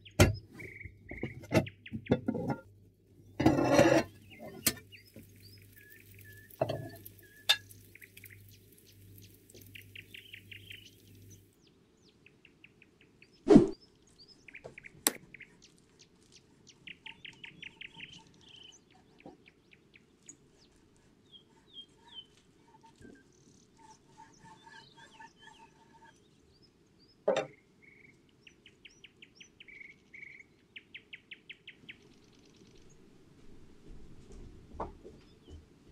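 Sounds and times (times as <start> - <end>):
small birds chirping and trilling: 0.0 - 2.5, 3.2 - 33.0.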